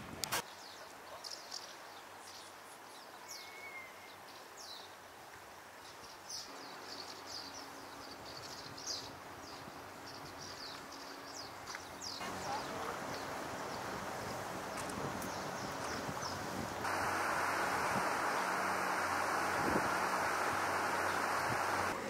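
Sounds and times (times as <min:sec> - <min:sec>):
birds chirping: 0:06.0 - 0:22.0
faint steady hum: 0:12.2 - 0:22.0.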